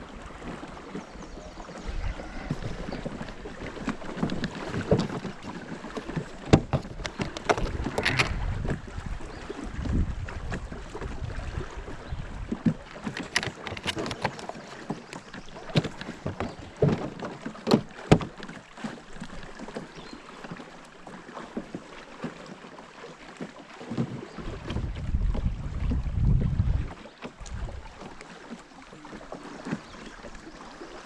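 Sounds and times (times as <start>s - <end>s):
river water around a boat: 0.0s - 31.0s
wind buffeting microphone: 1.0s - 5.4s, 6.4s - 12.8s, 24.2s - 28.0s
light knocks and taps: 15.7s - 18.5s.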